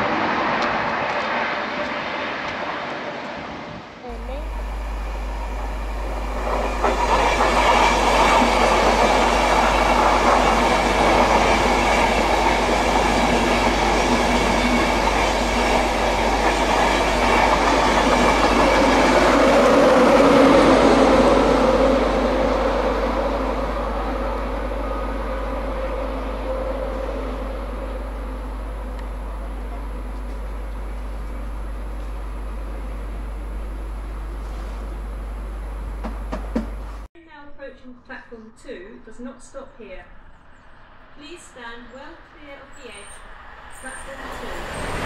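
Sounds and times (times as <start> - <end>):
electric train running past: 0.0 - 37.1, 39.1 - 45.0.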